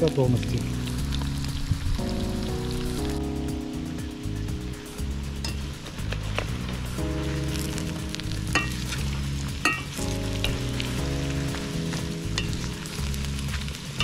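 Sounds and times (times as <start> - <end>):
fries sizzling in hot oil: 0.0 - 14.0
metal skimmer clinking on pot: 9.6 - 9.9.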